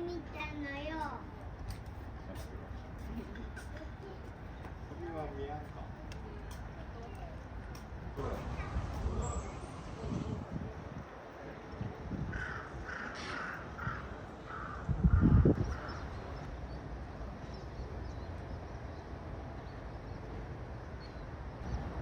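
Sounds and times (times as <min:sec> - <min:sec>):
crow cawing: 0:12.3 - 0:15.9.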